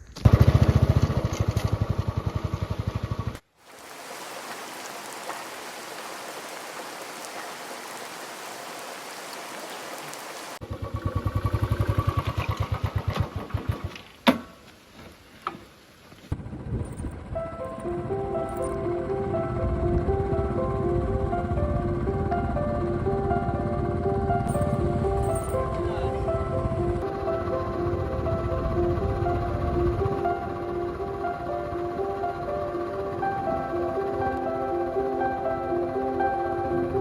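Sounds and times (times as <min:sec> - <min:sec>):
motorcycle engine pulsing: 0:00.1 - 0:03.4, 0:10.6 - 0:14.1
rain-like hiss: 0:03.5 - 0:10.6, 0:13.9 - 0:16.4
music: 0:17.1 - 0:37.0.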